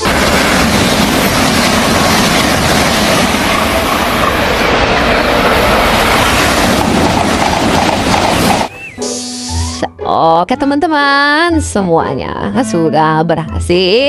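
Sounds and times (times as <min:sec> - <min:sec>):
train rushing and rumbling: 0:00.0 - 0:09.8.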